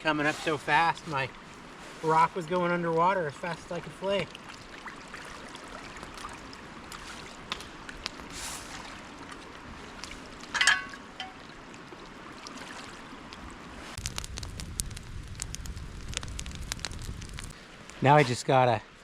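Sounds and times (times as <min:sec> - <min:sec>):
seawater washing around rocks: 0:00.0 - 0:15.0
low rumble with crackling: 0:00.0 - 0:19.0.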